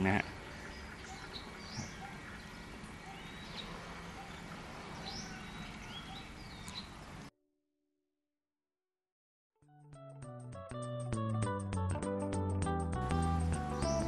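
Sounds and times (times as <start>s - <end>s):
birds chirping: 0.0s - 7.3s, 13.5s - 14.0s.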